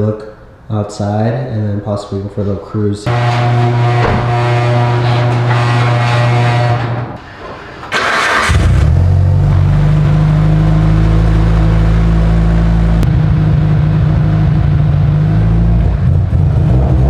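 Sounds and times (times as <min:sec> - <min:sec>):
car engine idling: 0:03.0 - 0:16.4.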